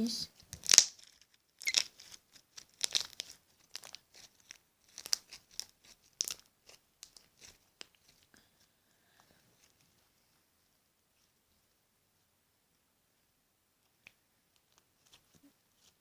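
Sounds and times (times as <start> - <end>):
slime crackling and popping: 0.4 - 8.3.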